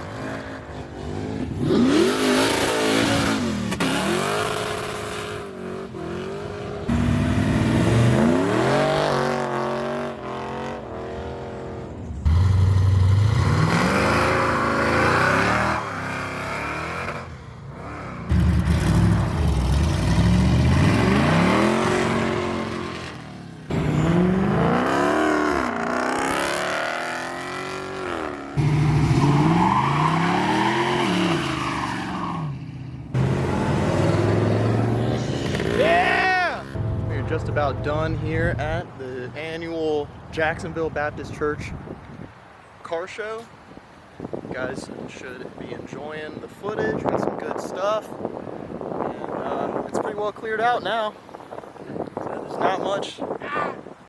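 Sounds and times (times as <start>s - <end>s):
car engines revving: 0.0s - 41.9s.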